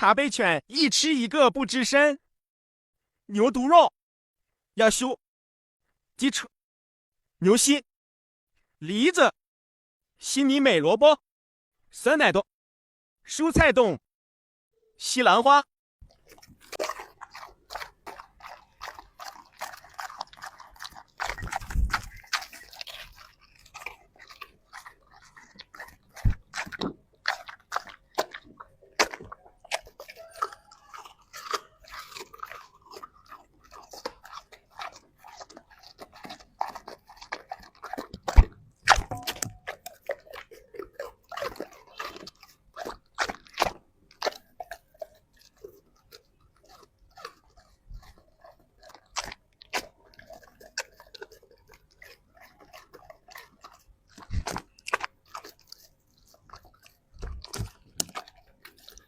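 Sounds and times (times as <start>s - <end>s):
dog chewing food: 16.0s - 59.0s.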